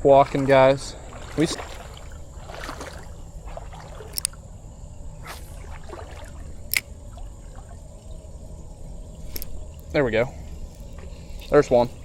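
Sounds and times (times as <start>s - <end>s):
water sloshing around wading legs: 0.0s - 12.0s
sharp clicks: 6.7s - 6.9s.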